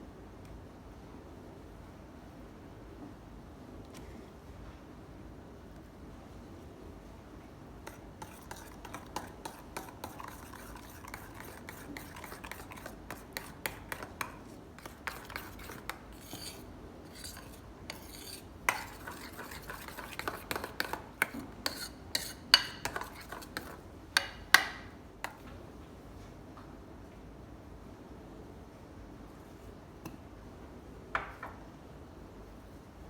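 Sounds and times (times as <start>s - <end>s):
metal spoon scraping a pot: 7.8s - 24.7s.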